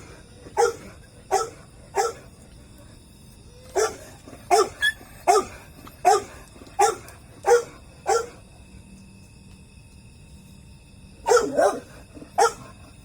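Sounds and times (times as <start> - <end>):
small dog barking: 0.6 - 2.2, 3.8 - 8.4, 11.3 - 12.7.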